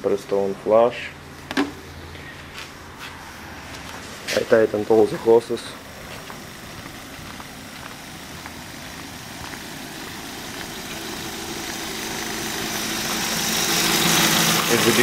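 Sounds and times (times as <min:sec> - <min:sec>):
car engine idling: 0:00.1 - 0:15.0.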